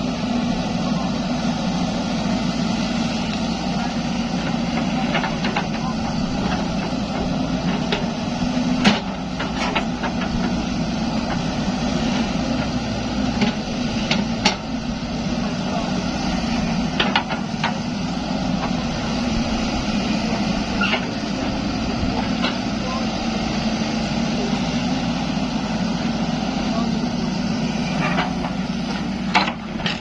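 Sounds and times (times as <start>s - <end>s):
excavator diesel engine running: 0.0s - 30.0s
machine knocks and clanks: 8.8s - 10.6s, 13.4s - 14.7s, 16.9s - 17.8s, 27.9s - 30.0s.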